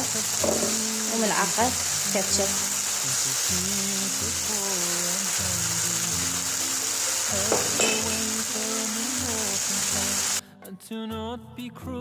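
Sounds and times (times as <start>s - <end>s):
sauce sizzling in a pan: 0.0s - 10.4s
utensil clink on pan: 7.5s - 8.4s.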